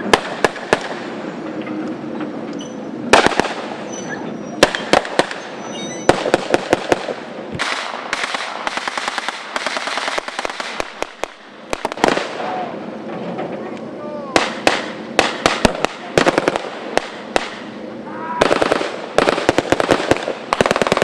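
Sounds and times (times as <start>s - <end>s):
blank gunshots: 6.1s - 12.6s, 14.4s - 17.7s, 18.4s - 21.0s.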